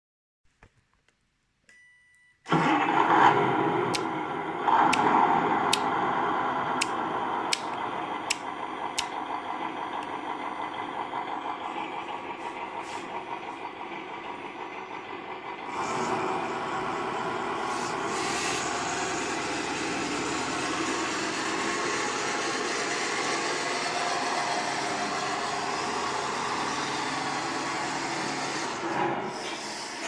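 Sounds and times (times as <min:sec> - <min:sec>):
simulated truck engine idling: 0:02.5 - 0:30.0
sharp clicks: 0:06.8 - 0:09.2.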